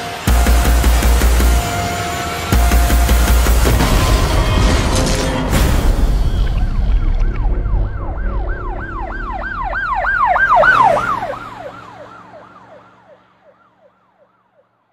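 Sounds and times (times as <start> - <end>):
low rumble: 2.6 - 11.4
siren in fast yelp: 6.6 - 14.8.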